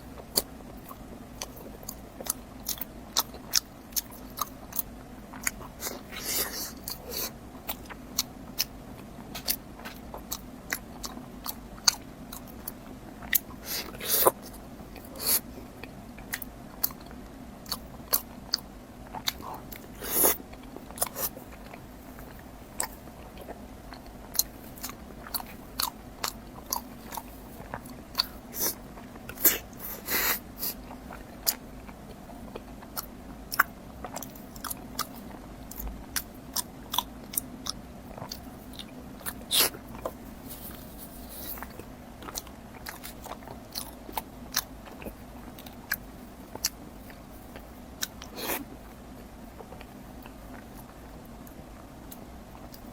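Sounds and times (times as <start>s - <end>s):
person biting and chewing: 32.5s - 46.0s.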